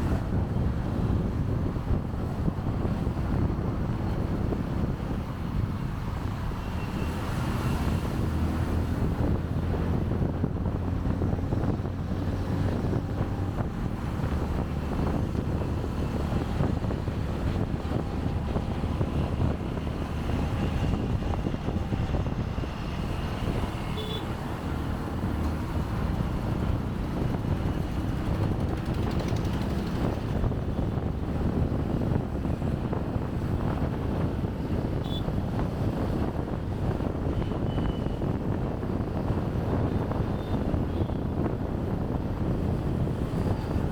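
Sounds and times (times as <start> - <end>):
wind buffeting microphone: 0.0 - 43.9
motorbike engine running: 28.1 - 30.3.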